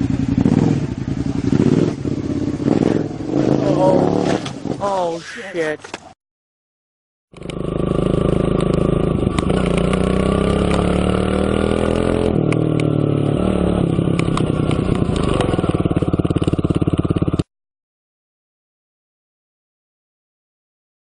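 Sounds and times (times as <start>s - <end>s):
motorcycle engine running: 0.0s - 4.7s, 7.3s - 17.5s.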